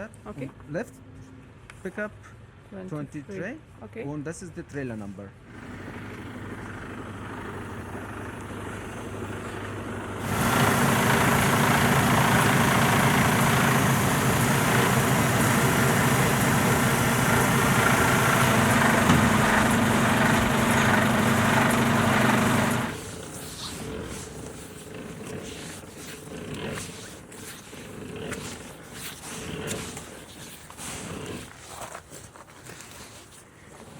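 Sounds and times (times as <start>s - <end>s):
truck engine humming: 10.2s - 23.1s.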